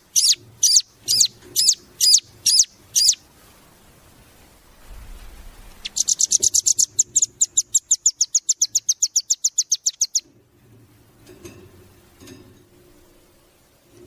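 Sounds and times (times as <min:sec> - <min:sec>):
nuthatch trilling: 0:00.0 - 0:03.2, 0:05.7 - 0:10.3.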